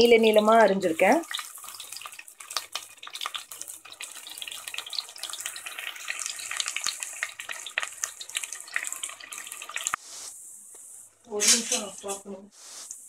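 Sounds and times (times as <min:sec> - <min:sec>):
onions sizzling in oil: 0:00.0 - 0:10.3.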